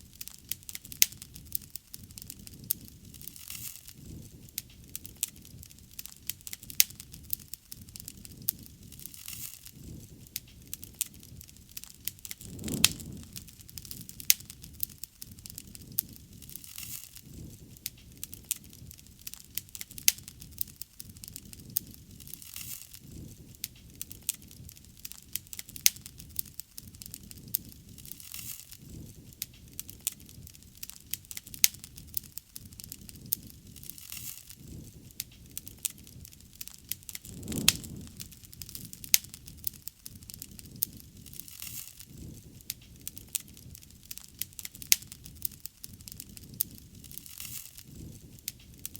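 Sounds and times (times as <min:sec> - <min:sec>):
wood bonfire crackling: 0:00.0 - 0:48.9
low rushing swell: 0:12.4 - 0:13.6, 0:37.2 - 0:38.6.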